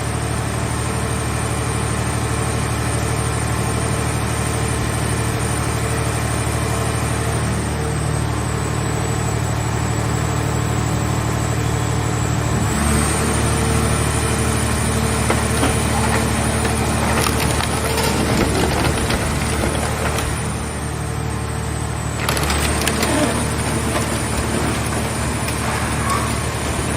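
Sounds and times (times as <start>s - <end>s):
baler engine and hydraulics running: 0.1s - 26.9s
car body crunching: 14.6s - 20.9s, 22.1s - 26.9s.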